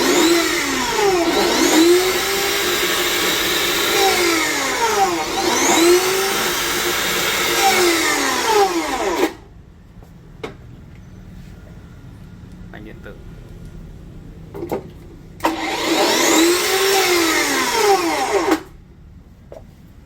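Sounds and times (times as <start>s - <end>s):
metal cut-off saw running: 0.0s - 9.4s, 15.4s - 18.8s.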